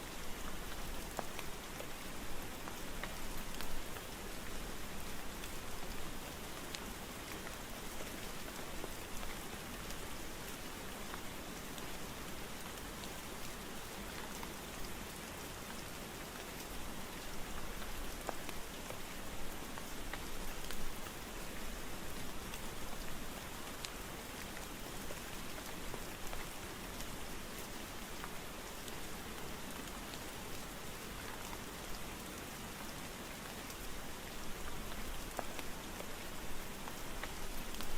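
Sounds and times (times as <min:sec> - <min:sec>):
steady rain falling: 0:00.0 - 0:37.9
raindrop ticks: 0:17.4 - 0:21.2, 0:34.6 - 0:37.9.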